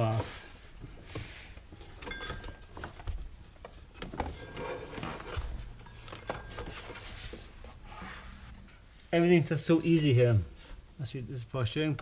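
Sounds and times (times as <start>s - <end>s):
clicks and knocks of handled parts: 0.1s - 7.5s.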